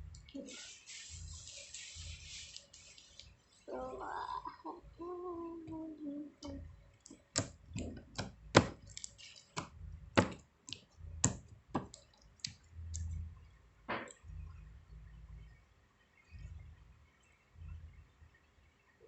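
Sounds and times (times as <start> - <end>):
sharp clicks and taps: 6.4 - 13.3
low handling rumble: 9.7 - 10.2, 10.9 - 15.6, 16.3 - 18.4.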